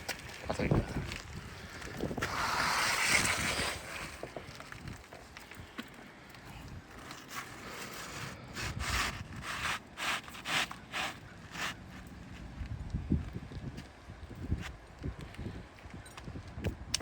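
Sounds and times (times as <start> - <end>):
scraping on roof shingles: 0.0 - 6.1, 6.7 - 12.5.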